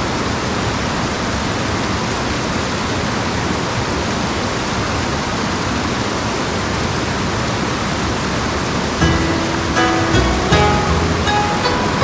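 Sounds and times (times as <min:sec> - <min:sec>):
plucked string music: 0:09.0 - 0:12.0.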